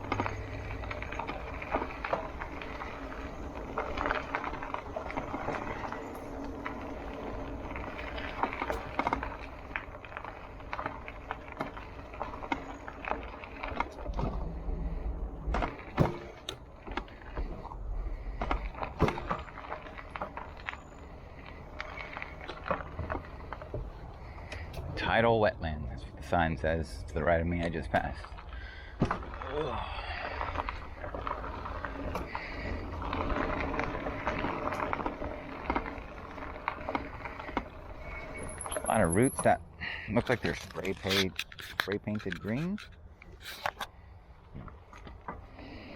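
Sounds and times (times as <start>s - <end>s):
bicycle knocks and rattles: 0.0s - 24.9s, 27.6s - 29.5s
wind rumbling on microphone: 0.0s - 26.3s
bicycle tyres rolling on dirt: 0.0s - 45.9s.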